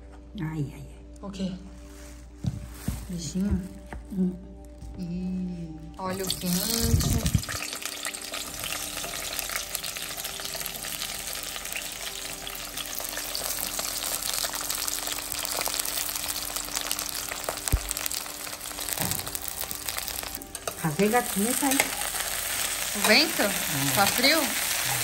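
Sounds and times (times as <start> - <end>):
eggplant frying in hot oil: 6.1 - 25.0.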